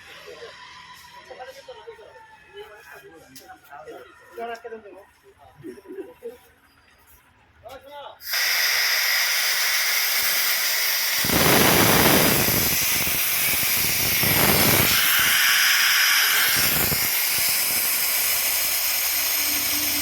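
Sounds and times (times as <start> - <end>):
pressure washer spray hissing: 8.2 - 20.0.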